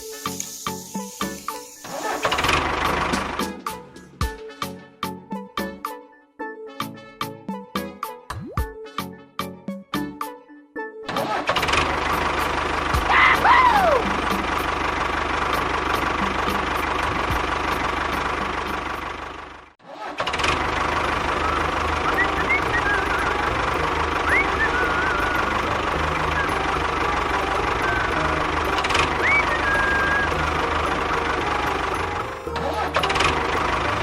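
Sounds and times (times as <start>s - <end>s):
small engine running: 0.0s - 3.7s, 11.1s - 34.0s.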